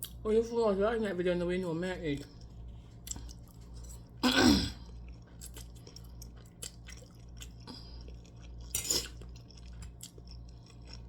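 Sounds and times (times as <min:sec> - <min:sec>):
steady low hum: 0:00.0 - 0:11.0
person chewing food: 0:02.2 - 0:11.0.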